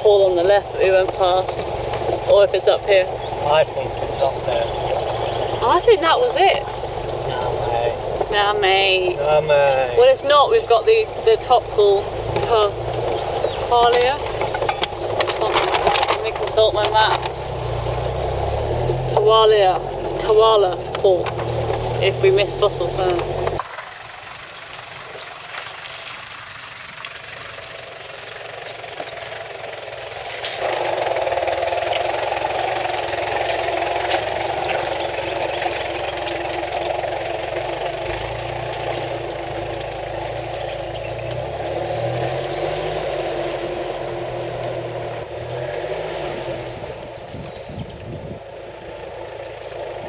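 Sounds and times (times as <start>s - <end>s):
engine running at low revs: 0.0s - 50.0s
knocks and rattles: 11.8s - 18.1s.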